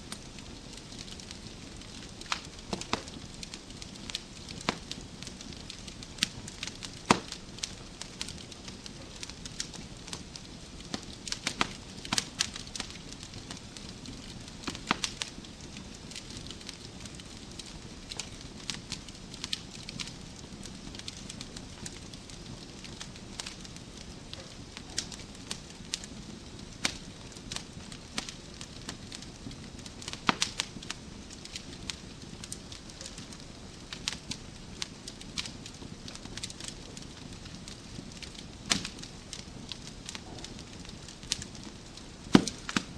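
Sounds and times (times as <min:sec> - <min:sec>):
wood fire crackling: 0:00.0 - 0:42.9.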